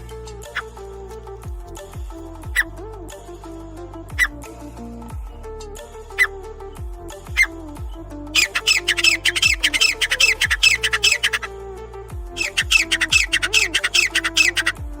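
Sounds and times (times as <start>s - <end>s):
electronic music with bass drops: 0.0s - 15.0s
bird calling harsh repeated notes: 0.4s - 0.8s, 2.2s - 2.8s, 4.2s - 4.5s, 6.1s - 6.5s, 7.3s - 7.7s, 8.3s - 11.6s, 12.4s - 15.0s.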